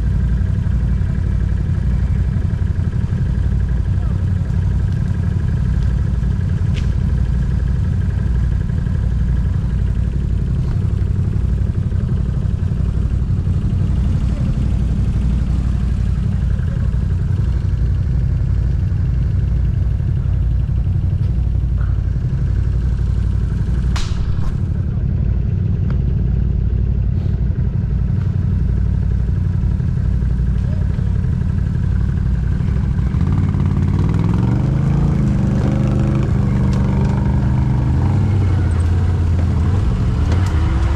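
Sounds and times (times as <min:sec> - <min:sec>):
engine running at low revs: 0:00.0 - 0:40.9
sharp clattering knock: 0:23.9 - 0:24.7.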